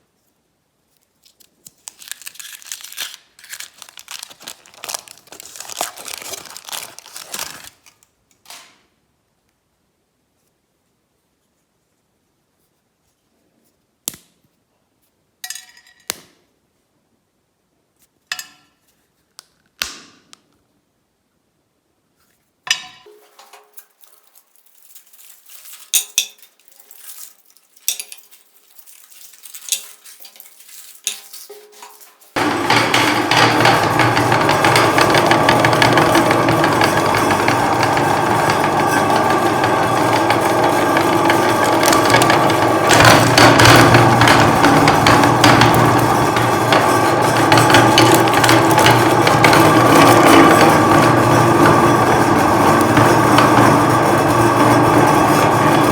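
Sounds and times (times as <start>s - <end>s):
electric meat grinder running: 32.4s - 55.9s.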